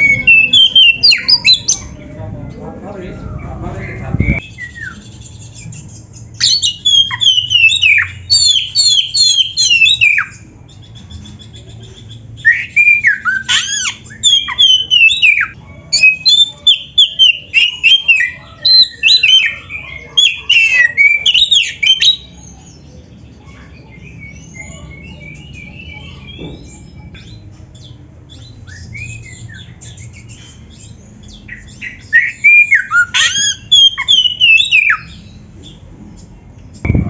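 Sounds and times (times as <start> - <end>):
bird singing whistled phrases: 0.0 - 1.9, 3.3 - 22.6, 28.4 - 35.3.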